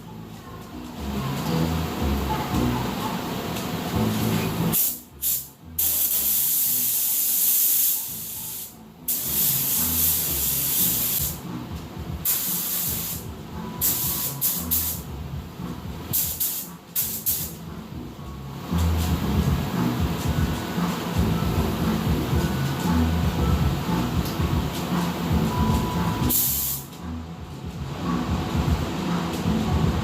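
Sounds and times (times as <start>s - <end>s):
spray paint hissing: 4.1s - 11.4s, 12.2s - 15.1s, 16.1s - 17.6s, 26.2s - 26.9s.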